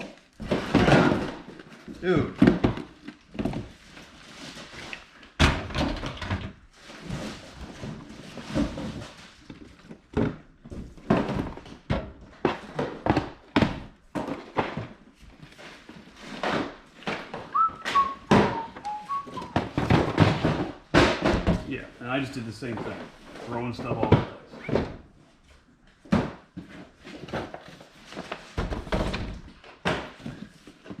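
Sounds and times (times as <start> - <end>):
cardboard boxes thunking onto piles: 0.0 - 3.8, 5.4 - 21.9, 26.0 - 31.0
high whistle-like notes: 17.5 - 19.7.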